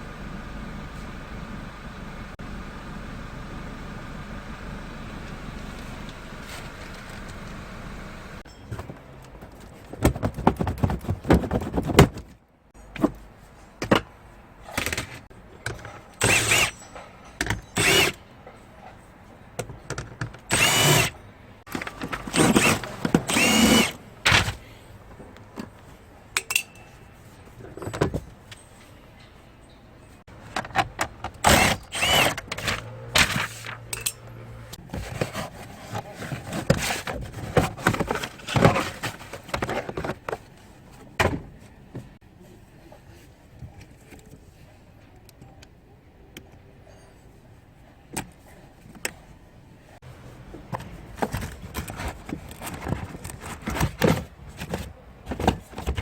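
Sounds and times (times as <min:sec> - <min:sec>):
power drill bursts: 0:16.2 - 0:16.7, 0:17.8 - 0:18.2, 0:20.5 - 0:21.1, 0:22.3 - 0:24.0, 0:31.4 - 0:32.4.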